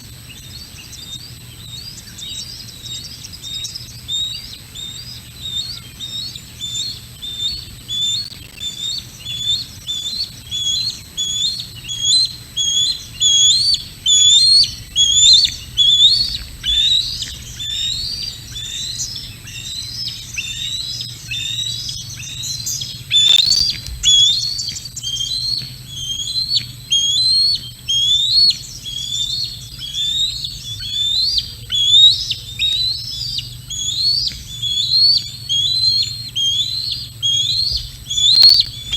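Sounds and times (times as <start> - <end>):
birds chirping: 23.2 - 23.7, 38.2 - 38.9
sharp click: 23.2 - 23.7, 38.3 - 38.8.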